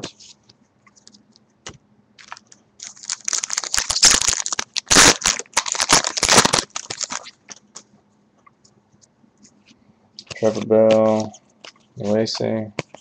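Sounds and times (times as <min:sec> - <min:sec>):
foil wrapper tearing and crinkling: 0:02.2 - 0:07.4.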